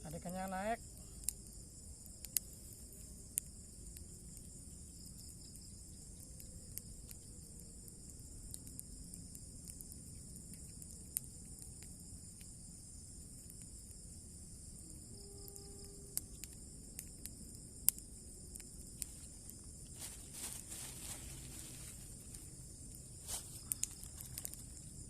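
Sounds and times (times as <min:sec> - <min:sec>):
crickets and insects chirping: 0:00.0 - 0:25.0
rustling: 0:19.0 - 0:25.0.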